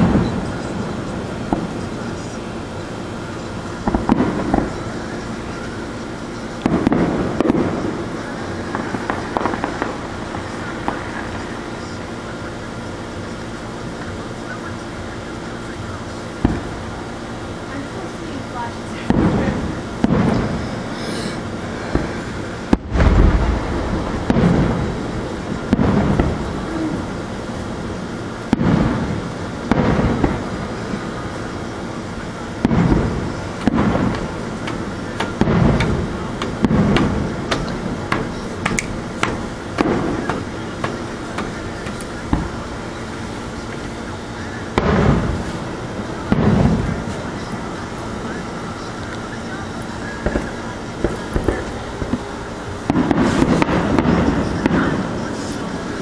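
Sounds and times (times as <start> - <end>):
sharp firework pops: 0.0 - 2.4, 3.8 - 5.8, 6.5 - 12.4, 16.4 - 16.9, 19.0 - 27.0, 28.5 - 31.2, 32.6 - 45.6, 46.2 - 47.5, 49.0 - 55.7
firework booms: 0.0 - 56.0.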